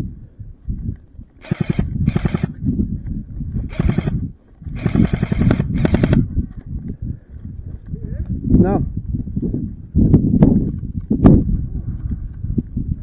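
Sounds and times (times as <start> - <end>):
airsoft gun full-auto bursts: 1.4 - 2.6, 3.7 - 4.2, 4.8 - 6.3.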